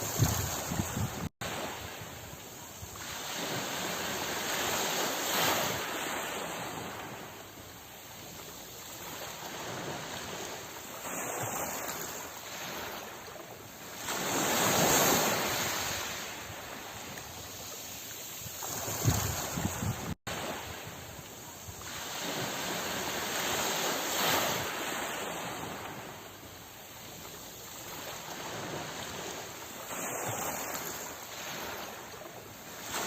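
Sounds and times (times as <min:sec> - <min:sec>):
sea waves breaking on shore: 0:00.0 - 0:33.0.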